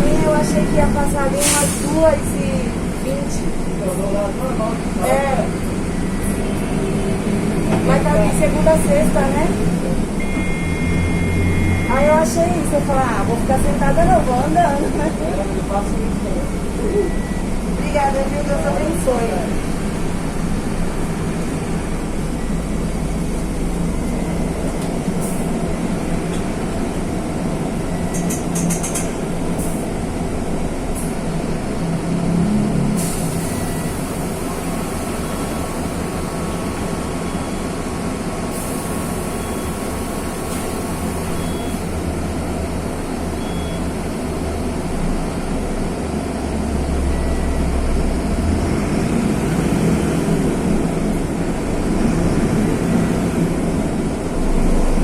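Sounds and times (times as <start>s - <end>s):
bus diesel engine running: 0.0s - 55.0s
short air hisses: 1.4s - 1.9s.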